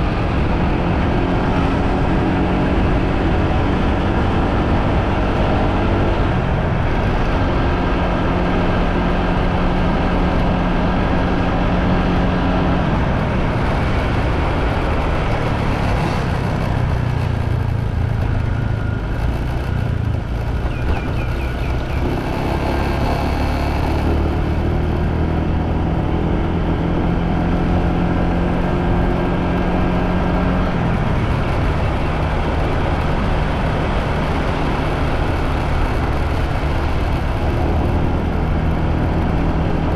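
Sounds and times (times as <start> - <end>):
road and wind noise: 0.0 - 39.9
motorbike engine running: 13.2 - 26.2.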